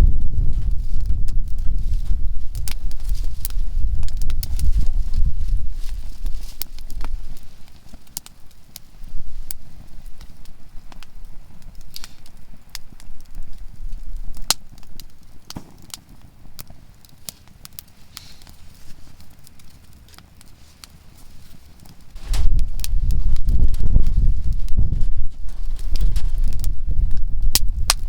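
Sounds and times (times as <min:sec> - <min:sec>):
low rumble: 0:00.0 - 0:07.4, 0:22.1 - 0:27.9
campfire crackling and popping: 0:00.0 - 0:28.0.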